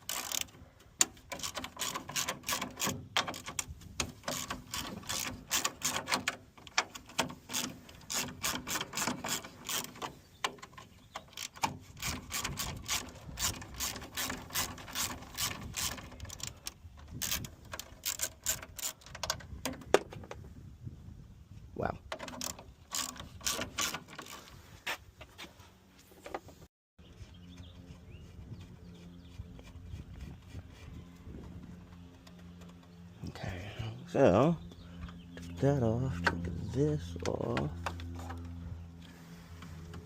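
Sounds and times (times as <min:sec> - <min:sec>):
ratchet wrench clicking: 0:00.0 - 0:03.6.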